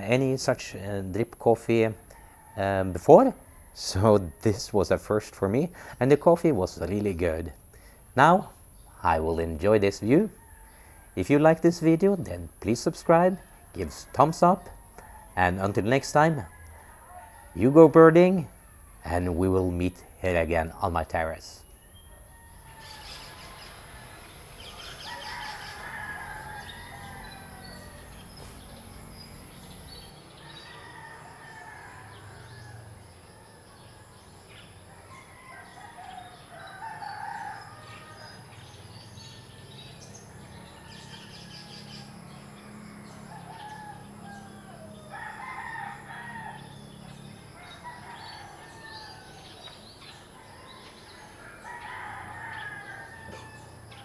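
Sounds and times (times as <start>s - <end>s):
roosters crowing: 0.0s - 0.8s, 1.6s - 54.0s
small birds chirping: 0.0s - 54.0s.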